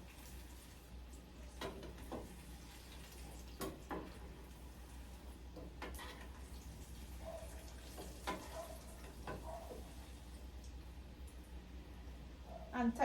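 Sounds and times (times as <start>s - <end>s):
oil sizzling: 0.0s - 11.6s
sharp pops of frying oil: 1.6s - 2.4s, 3.5s - 4.2s, 5.5s - 6.3s, 8.0s - 9.5s.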